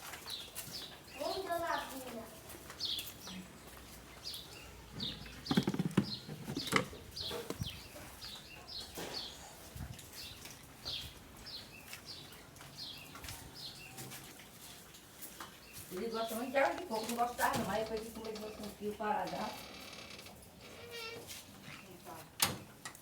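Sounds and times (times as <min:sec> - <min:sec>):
small bird chirping: 0:02.8 - 0:14.0.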